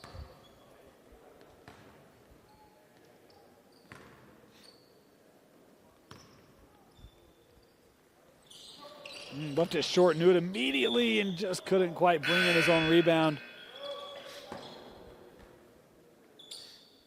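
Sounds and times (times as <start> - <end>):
shoe squeaks: 2.4 - 5.2, 8.4 - 15.0, 16.4 - 17.0.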